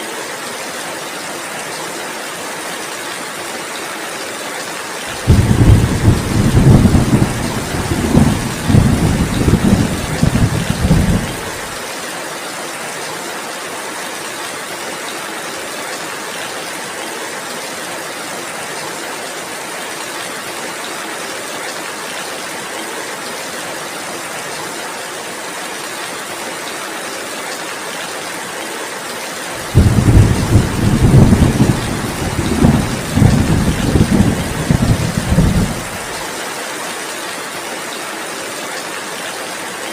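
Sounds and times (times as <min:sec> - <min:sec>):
heavy rain falling: 0:00.0 - 0:39.9
rolling thunder rumbling: 0:05.2 - 0:11.7, 0:29.6 - 0:36.2.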